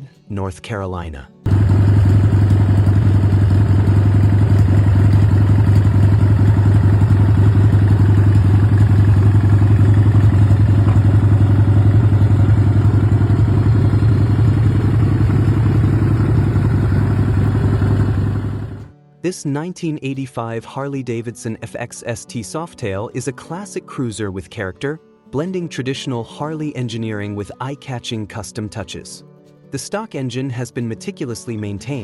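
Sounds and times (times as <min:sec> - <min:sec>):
motorcycle engine idling: 0:01.5 - 0:18.9.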